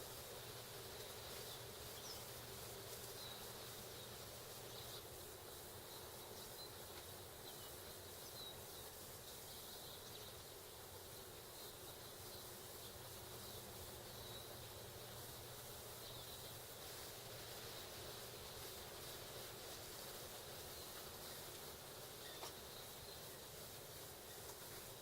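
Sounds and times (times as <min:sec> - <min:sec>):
faint outdoor hiss: 0:00.0 - 0:25.0
small birds chirping: 0:00.0 - 0:25.0.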